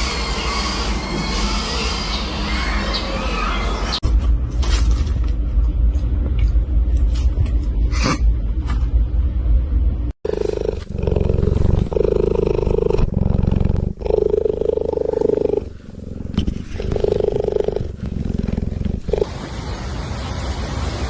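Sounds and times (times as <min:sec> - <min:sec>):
animal roaring: 0:10.3 - 0:19.3.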